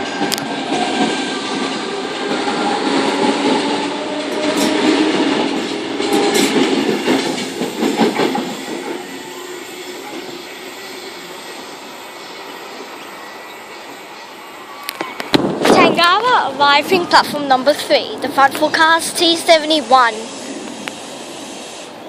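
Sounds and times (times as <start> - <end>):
electric train passing: 0.0 - 22.0.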